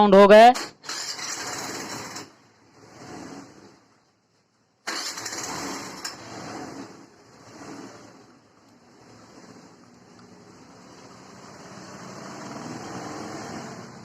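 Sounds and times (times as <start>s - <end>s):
person speaking: 0.0s - 0.6s.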